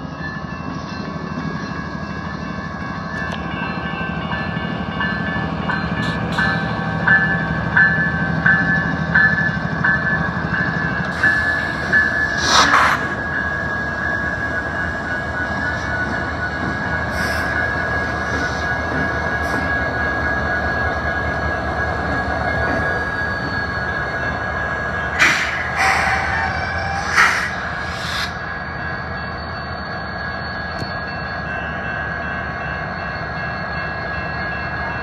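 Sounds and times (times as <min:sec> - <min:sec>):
diesel locomotive engines running: 0:00.0 - 0:35.0
high-pitched wheel squeal: 0:11.1 - 0:31.0.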